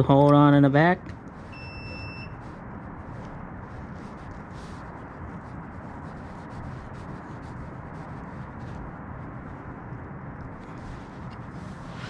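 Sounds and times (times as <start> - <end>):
low rushing background noise: 0.0 - 12.0
faint rubbing: 10.8 - 12.0.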